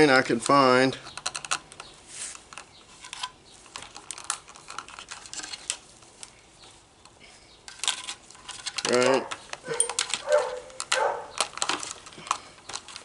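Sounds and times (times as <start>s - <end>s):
trimmer line clicks and rustles: 0.2s - 6.4s, 7.0s - 13.0s.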